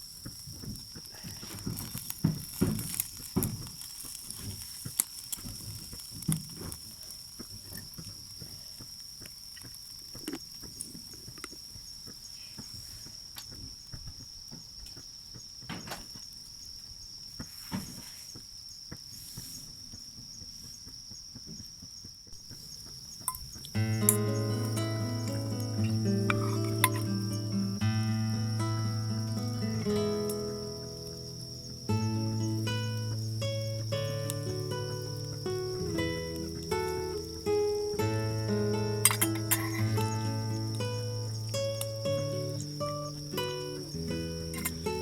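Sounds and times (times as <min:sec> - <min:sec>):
crickets chirping: 0:00.0 - 0:45.0
sharp clicks and knocks: 0:00.2 - 0:08.6.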